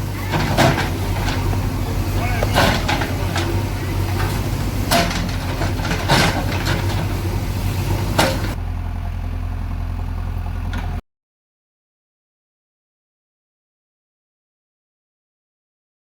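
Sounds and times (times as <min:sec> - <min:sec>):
diesel engine idling: 0:00.0 - 0:11.0
sharp knocks: 0:00.4 - 0:07.2.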